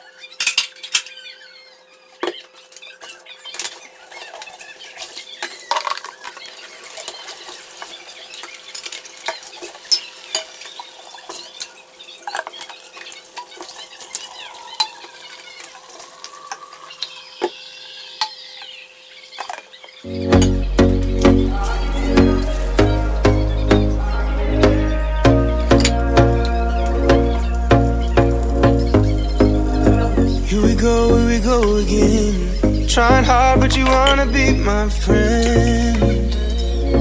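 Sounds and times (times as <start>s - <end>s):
dishes and cutlery clinking: 0.4s - 1.1s.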